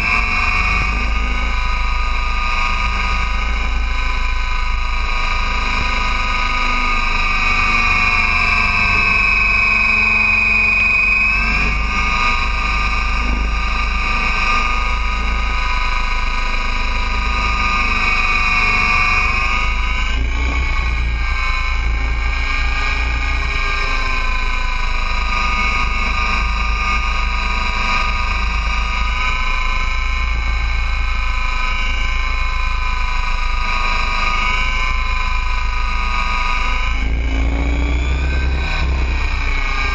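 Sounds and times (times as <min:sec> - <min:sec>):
model helicopter high whine: 0:00.0 - 0:39.9.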